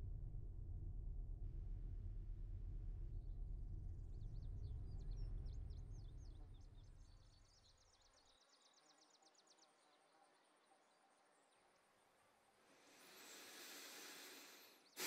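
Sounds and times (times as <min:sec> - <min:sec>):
low drone: 0:12.8 - 0:15.0.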